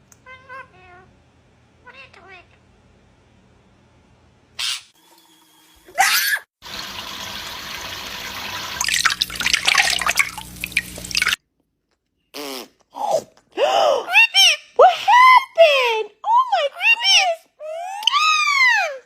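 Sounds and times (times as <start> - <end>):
water running and splashing: 6.6 - 11.4.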